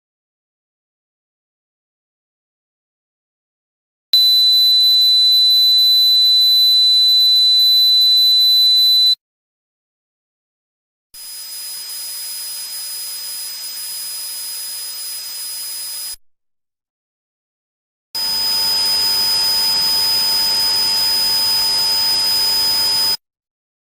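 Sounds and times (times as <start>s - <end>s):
high-pitched ringing tone: 4.2s - 9.2s, 18.2s - 23.2s
hiss: 11.2s - 16.2s.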